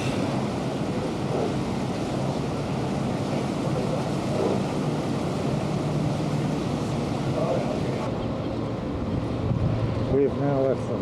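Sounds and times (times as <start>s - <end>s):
wind buffeting microphone: 0.0s - 10.4s
boat engine droning: 0.0s - 11.0s
water rushing along hull: 0.0s - 11.0s.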